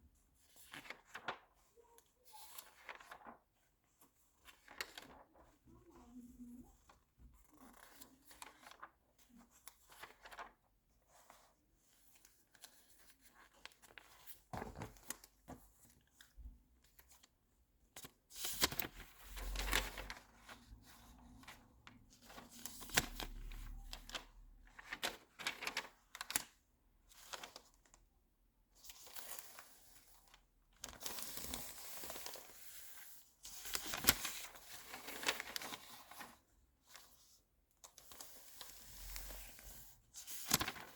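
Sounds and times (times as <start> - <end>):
magazine pages turning: 0.6 - 1.6, 2.4 - 3.5, 4.4 - 5.4, 9.7 - 10.5, 12.2 - 16.4, 18.0 - 20.6, 22.2 - 26.5, 28.9 - 37.1, 37.8 - 40.9.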